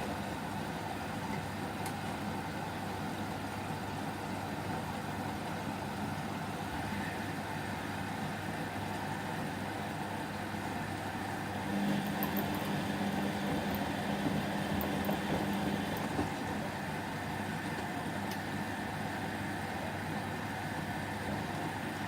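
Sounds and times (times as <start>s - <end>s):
washing machine hum and rumble: 0.0s - 22.0s.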